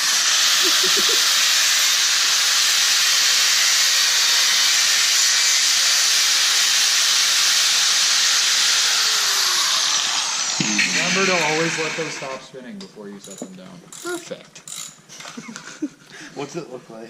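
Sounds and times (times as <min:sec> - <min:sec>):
power tool cutting plastic: 0:00.0 - 0:12.5.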